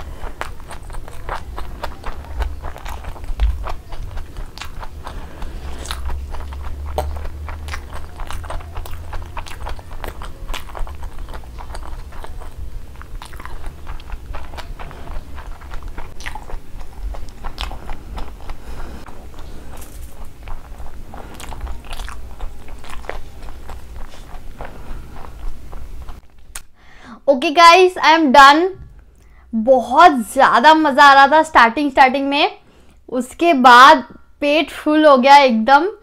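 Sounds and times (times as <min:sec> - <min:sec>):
chewing with wet clicks: 0:00.0 - 0:26.7.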